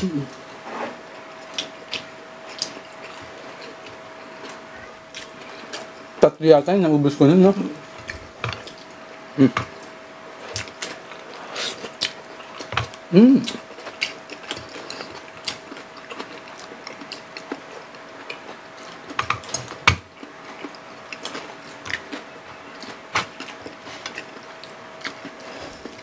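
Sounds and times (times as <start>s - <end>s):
faint steady hum: 0.0s - 26.0s
chewing and lip smacks: 1.4s - 5.9s, 9.7s - 26.0s.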